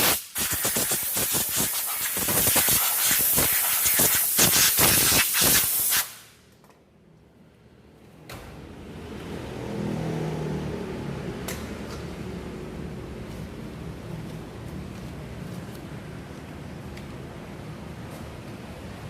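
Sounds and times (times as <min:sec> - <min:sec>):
pressurised hissing spray: 0:00.0 - 0:06.3.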